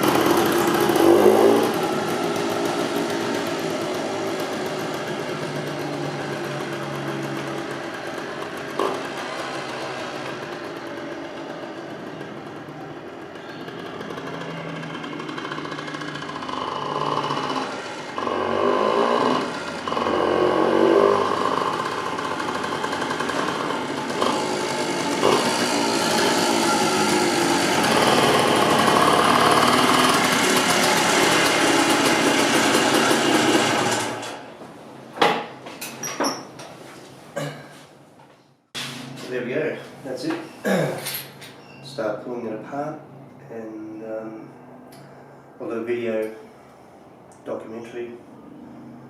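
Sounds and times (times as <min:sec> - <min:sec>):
two-stroke motorcycle engine revving: 0:00.0 - 0:34.6.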